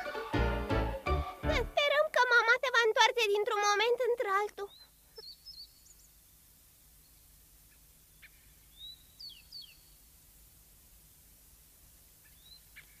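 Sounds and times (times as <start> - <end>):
faint bird chirps: 4.5 - 10.2, 12.2 - 13.0.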